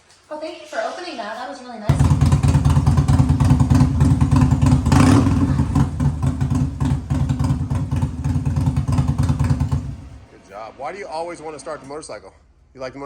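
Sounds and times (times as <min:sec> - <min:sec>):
motorcycle engine idling: 0:01.9 - 0:10.4.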